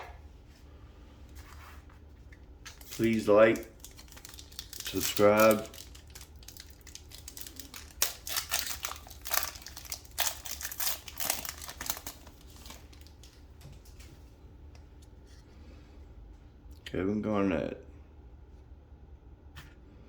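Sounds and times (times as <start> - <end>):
plastic wrapper crinkling and tearing: 2.7 - 14.0.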